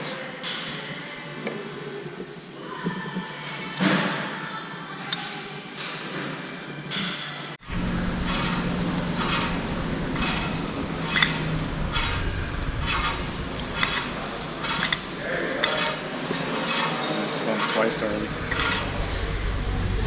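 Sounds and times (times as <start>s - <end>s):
low steady hum: 7.6s - 16.6s, 17.9s - 20.0s
wrench scraping and clicking: 8.2s - 19.2s.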